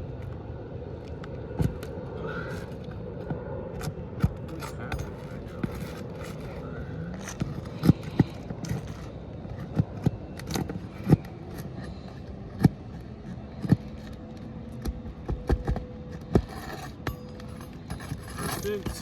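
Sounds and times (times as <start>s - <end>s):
metal tools knocking on shingles: 15.3s - 19.0s.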